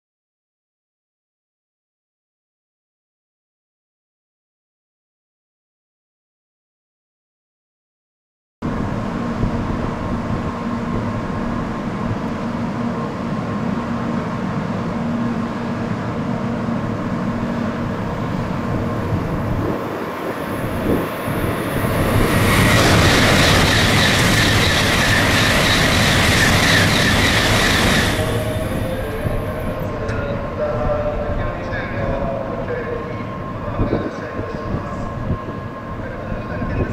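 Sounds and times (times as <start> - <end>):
train humming: 8.6 - 36.9
wind on microphone: 17.9 - 32.6, 33.4 - 36.9.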